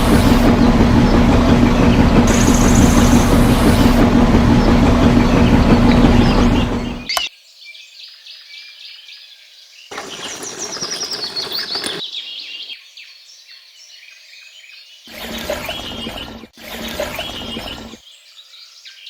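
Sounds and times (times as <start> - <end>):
rushing noise: 0.0 - 7.1
small motor humming: 0.0 - 7.1, 9.9 - 12.2, 15.1 - 18.0
birds chirping: 0.0 - 7.3, 9.8 - 14.1, 14.8 - 19.0.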